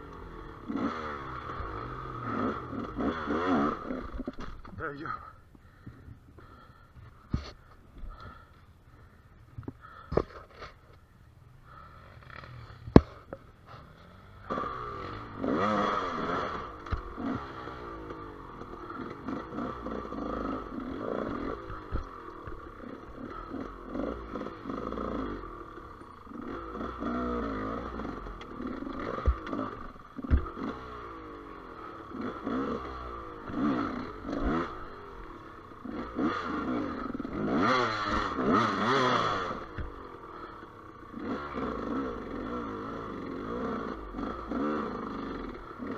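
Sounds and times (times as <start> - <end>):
motorcycle engine revving: 0.0 - 5.8, 6.4 - 9.2, 11.6 - 45.9
engine knocks and clatter: 16.4 - 31.2.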